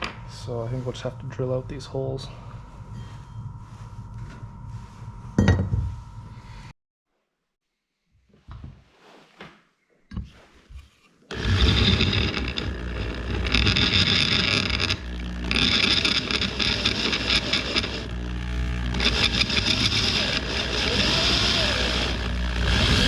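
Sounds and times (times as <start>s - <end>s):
drill grinding into steel: 11.3s - 23.0s.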